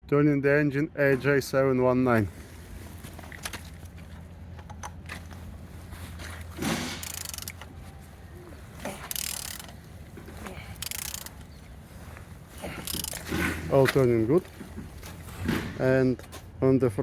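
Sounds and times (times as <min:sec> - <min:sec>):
engine turned over by hand: 0:06.4 - 0:07.8, 0:08.8 - 0:11.4, 0:12.6 - 0:13.9.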